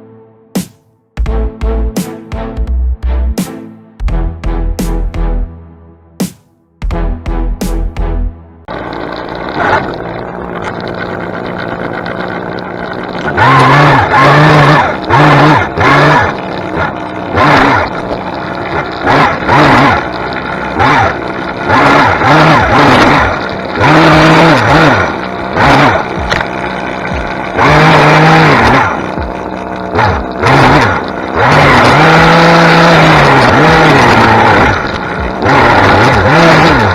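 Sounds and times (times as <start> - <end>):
small gas engine revving: 8.7 - 36.9.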